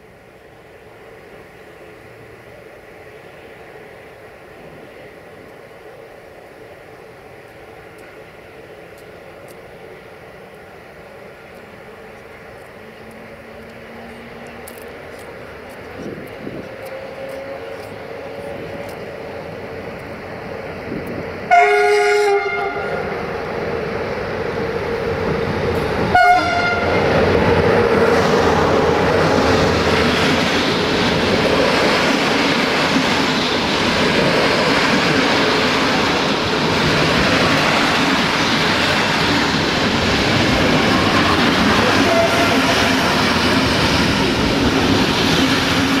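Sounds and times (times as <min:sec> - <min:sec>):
train wheels rolling past: 0:00.0 - 0:46.0
locomotive horn blast: 0:21.5 - 0:23.1, 0:26.1 - 0:27.1, 0:40.9 - 0:43.2.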